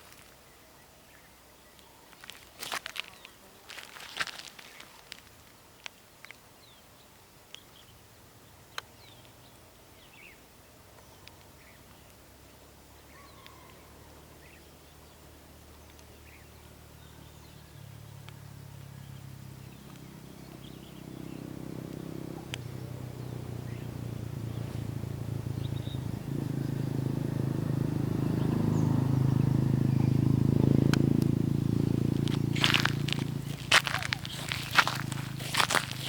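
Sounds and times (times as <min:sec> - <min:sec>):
low droning hum: 0:29.7 - 0:36.0.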